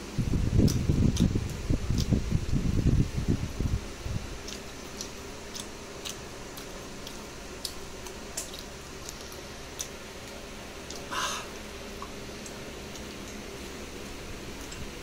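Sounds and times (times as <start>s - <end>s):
steady background hum: 0.0s - 15.0s
wet chewing clicks and smacks: 0.6s - 2.2s, 4.4s - 13.8s, 14.5s - 15.0s.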